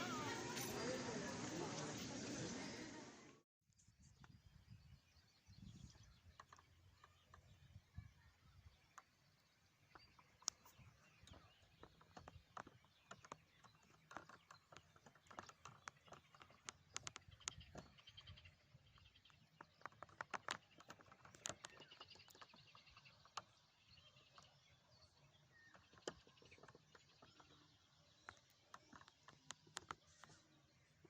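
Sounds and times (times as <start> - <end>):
small birds chirping: 0.0 - 31.0
faint clicks and taps: 8.8 - 18.4, 19.1 - 23.6, 25.7 - 30.5.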